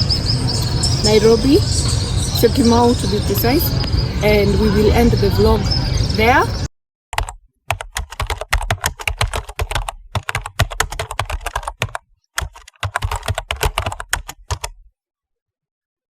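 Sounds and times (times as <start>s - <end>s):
keyboard typing: 7.2s - 14.8s.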